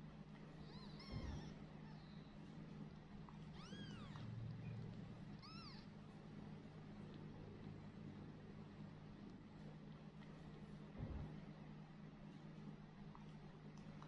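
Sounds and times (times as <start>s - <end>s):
steady low hum: 0.0s - 14.0s
kittens mewing: 0.6s - 2.2s, 5.3s - 5.9s.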